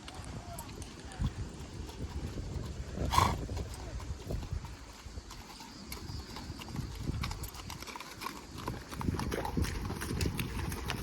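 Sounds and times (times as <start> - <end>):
horse hooves clopping: 0.0 - 11.0.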